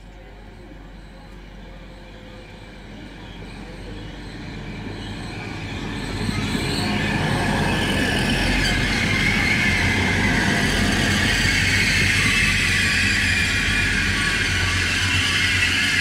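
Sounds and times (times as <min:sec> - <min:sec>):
train rumbling past: 0:00.0 - 0:16.0
high-pitched squeal: 0:03.4 - 0:16.0.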